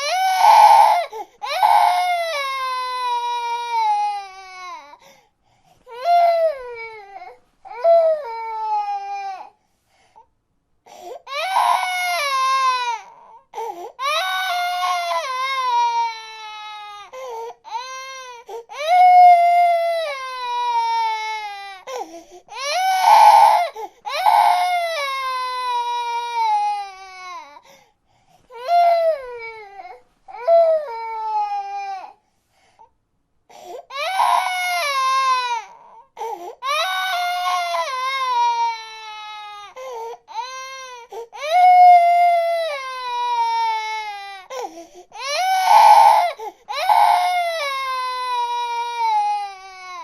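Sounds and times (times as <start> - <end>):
baby crying: 0.0 - 5.0, 5.9 - 9.6, 10.9 - 27.6, 28.5 - 32.2, 33.5 - 50.0
baby gasping breaths: 44.5 - 45.2.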